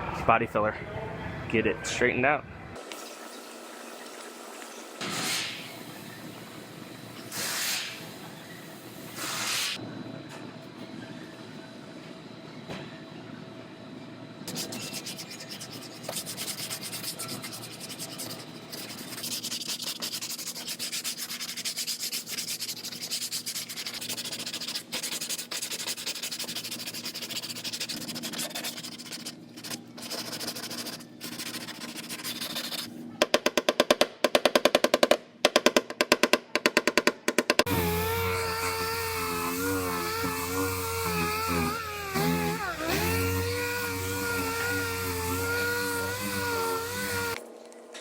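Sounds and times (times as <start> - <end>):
sanding metal rasping: 14.5 - 32.9, 37.7 - 47.4.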